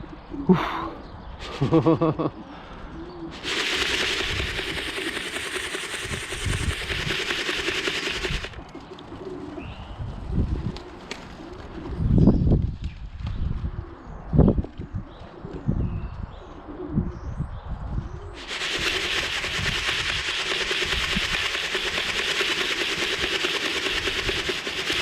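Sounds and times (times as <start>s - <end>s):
pigeons cooing: 0.1s - 12.2s, 16.5s - 17.1s
steady rushing noise: 3.3s - 8.6s, 18.4s - 25.0s.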